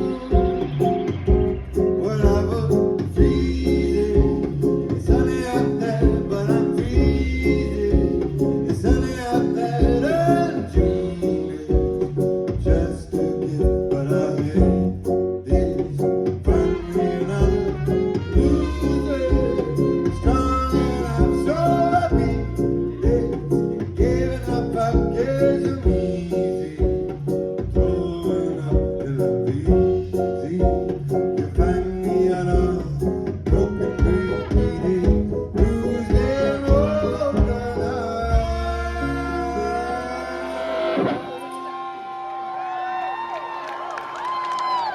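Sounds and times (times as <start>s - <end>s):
melodic lead line: 0.0s - 12.0s, 16.4s - 27.0s
steady drum beat: 0.0s - 38.8s
bass guitar: 0.0s - 41.9s
electric guitar: 39.1s - 42.4s.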